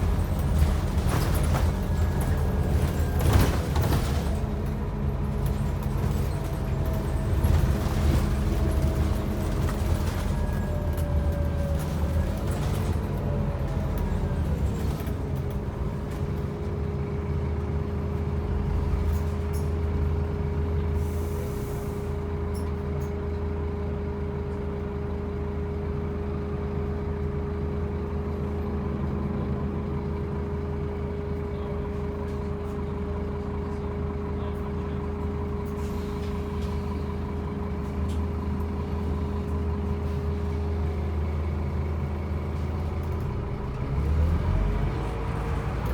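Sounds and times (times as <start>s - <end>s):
bus diesel engine with whine: 0.0s - 45.9s
air brakes hissing: 20.9s - 22.3s, 35.7s - 37.1s.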